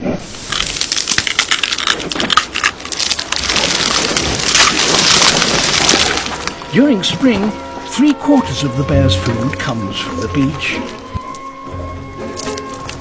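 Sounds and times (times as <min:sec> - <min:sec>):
steady rushing hiss: 0:00.0 - 0:02.3
sharp crunching clicks: 0:00.5 - 0:06.6.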